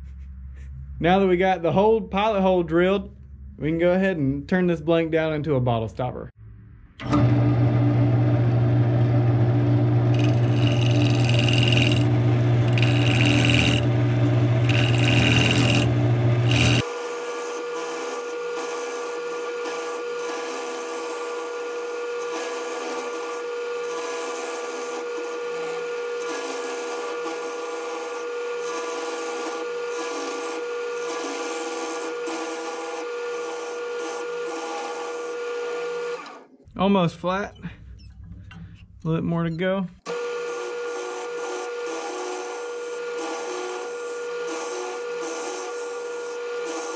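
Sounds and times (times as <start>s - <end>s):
lathe motor hum: 7.0s - 36.4s, 40.1s - 46.9s
wood lathe turning tool cutting: 7.0s - 36.5s, 40.1s - 46.9s.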